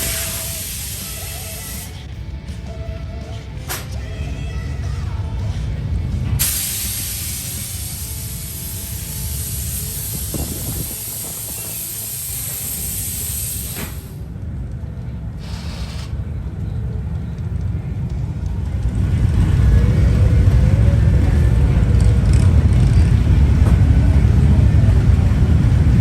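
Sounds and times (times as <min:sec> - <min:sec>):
hiss: 0:00.0 - 0:02.0, 0:06.4 - 0:14.3, 0:15.4 - 0:16.2
motorcycle engine rumbling: 0:00.0 - 0:26.0.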